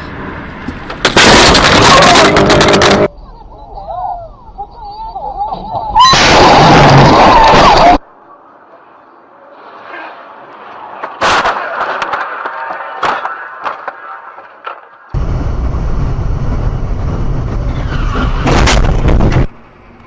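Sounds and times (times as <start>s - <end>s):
car crash: 0.8s - 3.1s, 10.9s - 19.6s
clattering debris: 0.9s - 3.1s
loud bang: 15.2s - 19.5s
heavy low rumbling: 15.2s - 19.6s.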